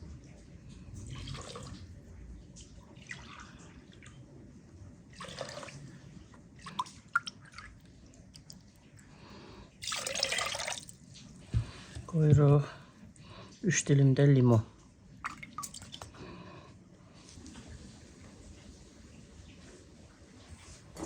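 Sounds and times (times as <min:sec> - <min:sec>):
water pouring into a pot: 0:01.0 - 0:02.0, 0:05.1 - 0:06.0, 0:09.8 - 0:11.0.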